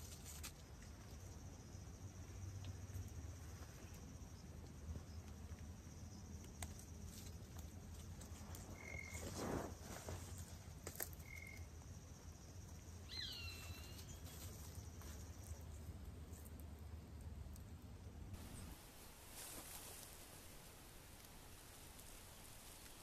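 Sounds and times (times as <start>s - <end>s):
rustle: 0.0s - 23.0s
high insect drone: 0.3s - 15.8s.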